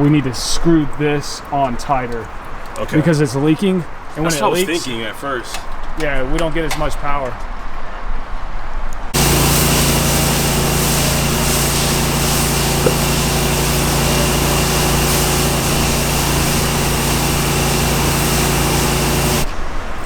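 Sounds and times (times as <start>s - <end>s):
pressure washer engine droning: 9.2s - 19.5s
water spray hiss: 9.2s - 19.5s.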